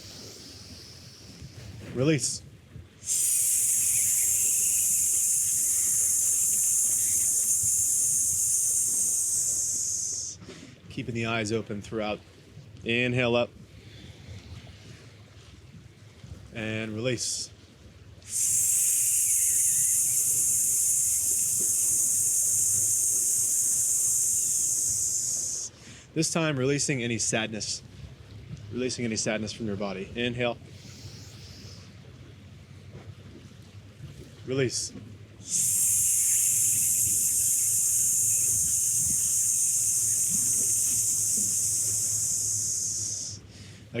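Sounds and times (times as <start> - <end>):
person hissing through teeth: 3.0 - 10.4, 18.3 - 25.7, 30.8 - 31.8, 35.4 - 43.4.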